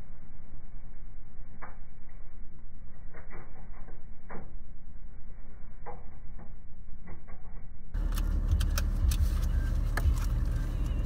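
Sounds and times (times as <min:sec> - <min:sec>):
diesel engine idling: 0:08.0 - 0:11.0.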